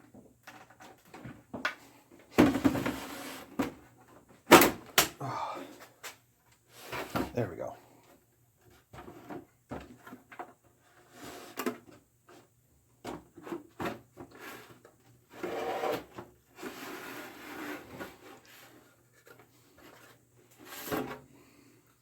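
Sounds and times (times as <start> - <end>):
plastic case scraping and rubbing: 13.4 - 21.2.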